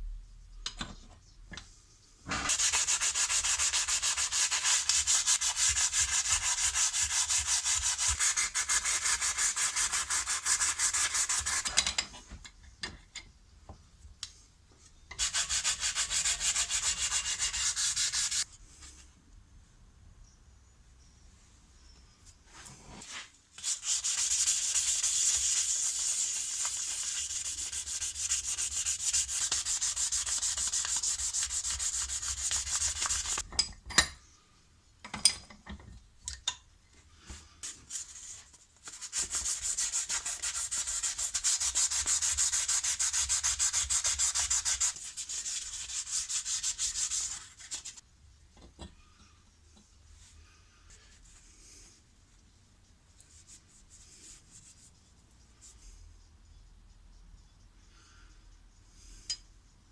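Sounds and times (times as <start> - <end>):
sanding on a steel spanner: 2.5 - 11.9, 15.1 - 18.5, 23.6 - 33.4, 37.7 - 48.0.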